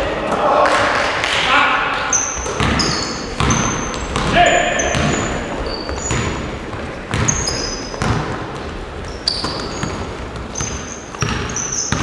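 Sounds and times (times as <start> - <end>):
basketballs bouncing on gym floor: 2.0 - 12.0
shoes squeaking on court: 2.0 - 12.0.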